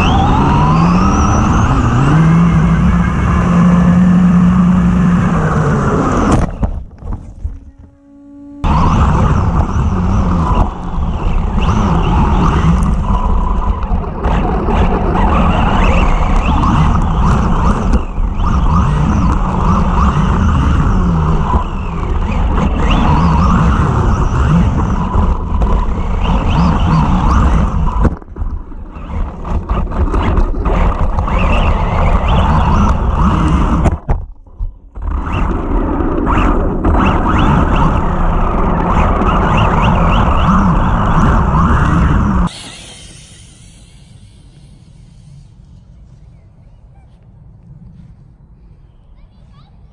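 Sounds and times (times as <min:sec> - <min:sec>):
rc car motor whine: 0:00.0 - 0:06.7, 0:07.4 - 0:28.2, 0:28.8 - 0:34.0, 0:35.0 - 0:45.9
steady rushing noise: 0:40.7 - 0:46.2.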